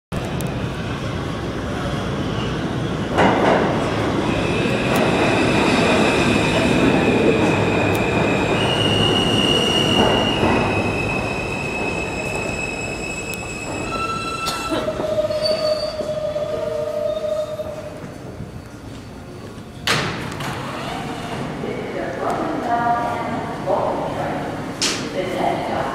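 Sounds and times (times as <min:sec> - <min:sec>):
subway train rumbling and clatter: 0:00.1 - 0:25.9
high-pitched wheel squeal: 0:08.3 - 0:18.0.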